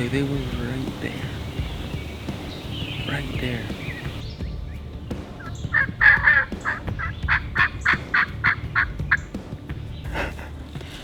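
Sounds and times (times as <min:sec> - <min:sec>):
turkey yelping: 0:00.0 - 0:04.2, 0:05.4 - 0:09.3.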